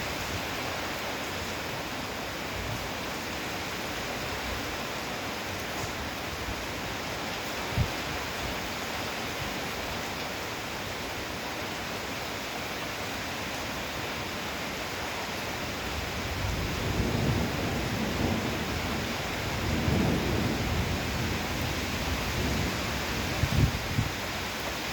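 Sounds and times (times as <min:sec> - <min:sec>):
heavy rain falling: 0:00.0 - 0:24.9
low rumble of thunder: 0:16.0 - 0:24.2.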